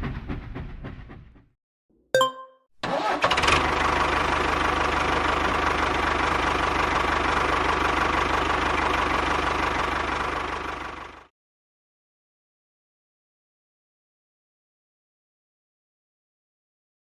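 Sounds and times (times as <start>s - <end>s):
tractor engine idling: 3.0s - 11.3s.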